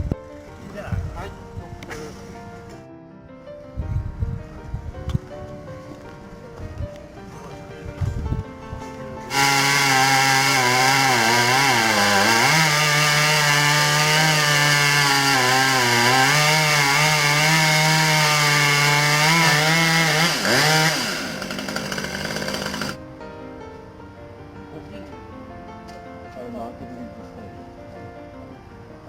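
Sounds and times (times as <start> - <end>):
chainsaw cutting wood: 9.3 - 23.0.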